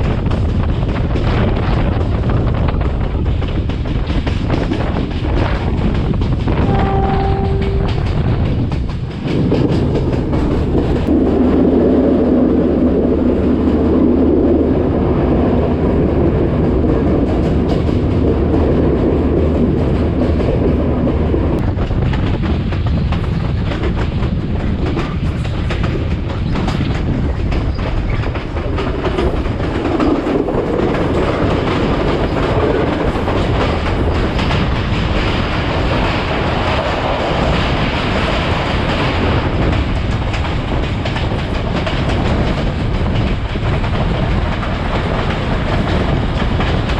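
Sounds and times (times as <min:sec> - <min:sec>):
train rumble: 0:00.0 - 0:46.9
train wheels clicking over rail joints: 0:00.0 - 0:46.9
short steady tone: 0:06.7 - 0:08.1.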